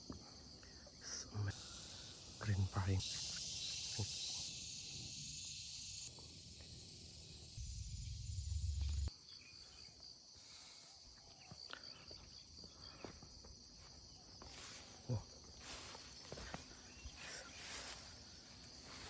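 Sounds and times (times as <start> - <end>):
forest insects chirping: 0.0 - 19.0
low rumble: 7.6 - 9.1.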